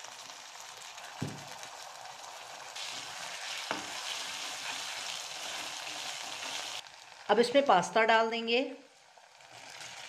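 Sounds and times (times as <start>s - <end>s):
vegetables sizzling in hot oil: 0.0s - 10.0s
wooden spatula stirring: 2.8s - 6.8s.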